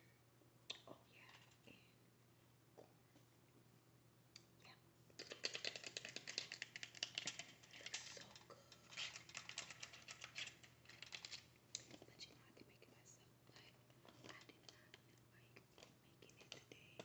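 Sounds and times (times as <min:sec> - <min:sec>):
shells crackling and clicking: 0:05.2 - 0:12.0.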